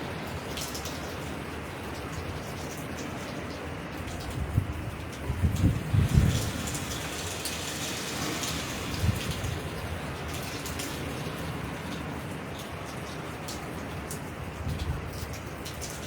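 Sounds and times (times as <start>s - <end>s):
heavy rain falling: 0.0s - 16.0s
low rumbling wind gusts: 4.3s - 10.2s.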